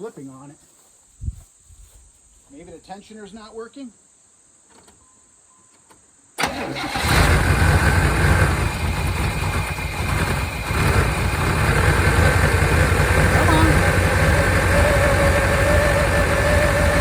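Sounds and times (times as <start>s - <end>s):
car engine starting and idling: 6.4s - 17.0s.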